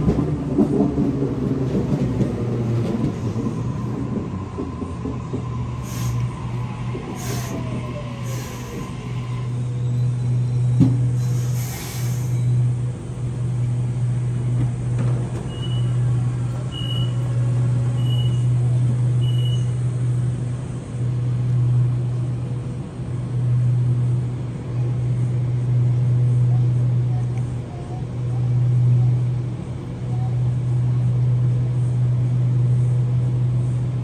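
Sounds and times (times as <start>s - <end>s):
train equipment low hum: 0.0s - 34.0s
air hiss: 5.8s - 6.4s, 7.2s - 9.0s, 11.2s - 12.5s.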